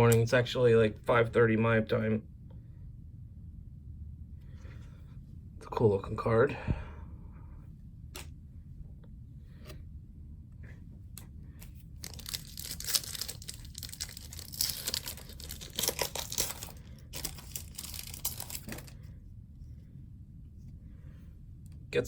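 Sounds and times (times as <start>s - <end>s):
wrapper tearing and crinkling: 12.0s - 19.0s.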